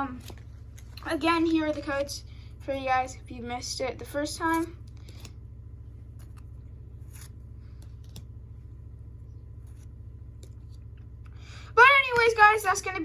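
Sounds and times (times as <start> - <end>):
low electrical hum: 0.0 - 13.0
trading cards clicking and rustling: 4.2 - 5.4, 6.0 - 8.4.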